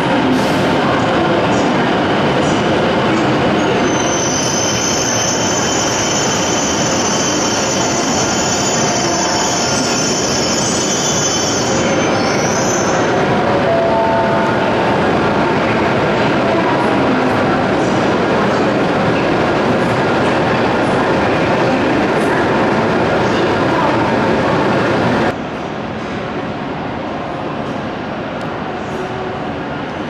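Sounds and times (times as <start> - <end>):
high-pitched train whine: 0.0 - 15.8.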